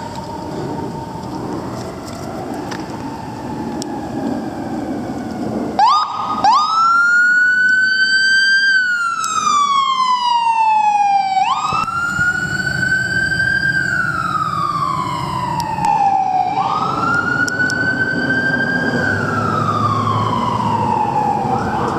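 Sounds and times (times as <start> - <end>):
siren chirps: 0.0 - 21.9
siren wailing: 0.0 - 21.9
vehicle rumble: 0.0 - 21.9.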